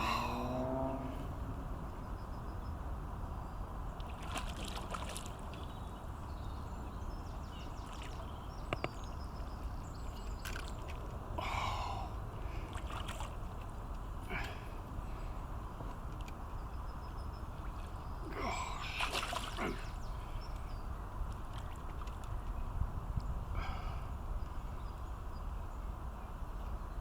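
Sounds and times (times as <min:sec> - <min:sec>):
steady low rumble: 0:00.0 - 0:03.6
fish splashing in water: 0:17.8 - 0:19.9.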